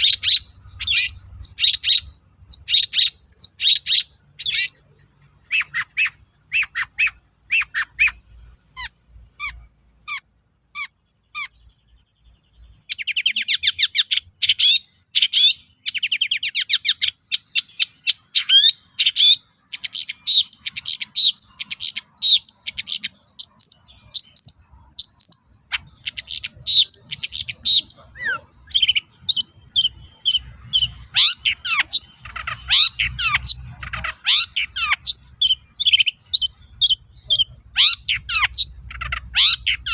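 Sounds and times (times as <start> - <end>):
shrike singing: 12.6 - 39.9.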